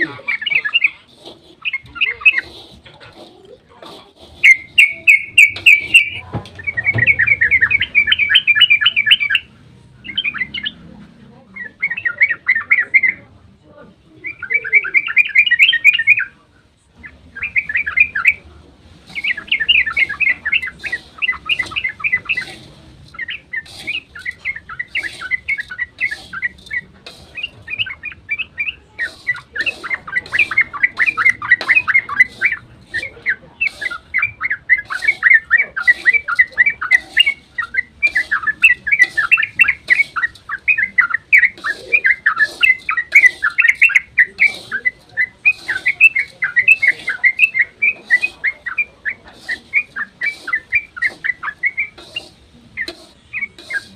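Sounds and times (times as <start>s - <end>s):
bird chattering song: 0.0s - 13.3s, 14.1s - 53.9s.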